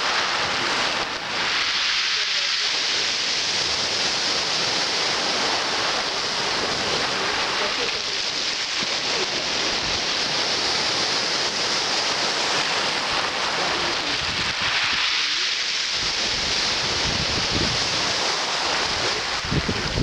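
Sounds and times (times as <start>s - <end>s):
sea surf washing onto beach: 0.0s - 20.0s
wind buffeting microphone: 3.4s - 15.0s, 15.9s - 20.0s.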